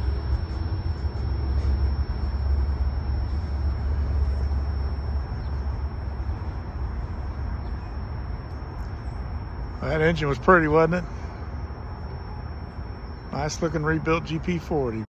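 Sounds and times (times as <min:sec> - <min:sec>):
freight train rumbling on rails: 0:00.0 - 0:08.3.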